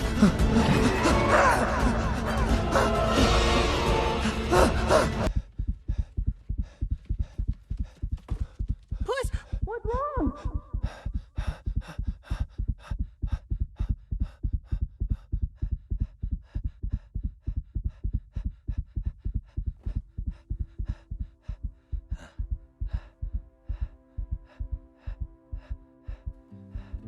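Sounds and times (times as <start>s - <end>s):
fast pounding heartbeat: 4.5s - 27.0s
low sustained music chords: 21.3s - 27.0s.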